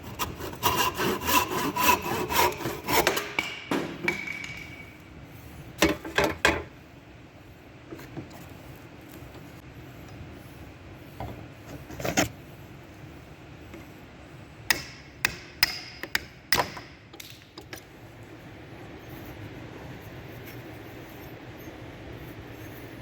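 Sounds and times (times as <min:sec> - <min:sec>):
steady low hum: 0:00.0 - 0:23.0
hammer strikes: 0:02.4 - 0:05.0.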